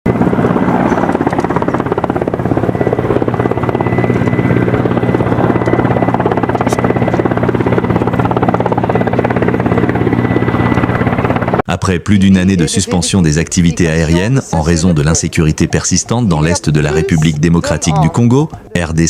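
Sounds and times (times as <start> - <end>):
aircraft engine drone: 0.1 - 11.6.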